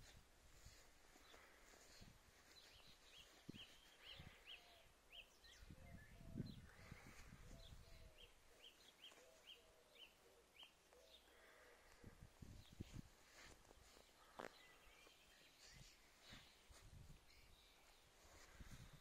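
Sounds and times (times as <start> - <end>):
bird chirping: 2.6 - 11.6, 14.0 - 18.1.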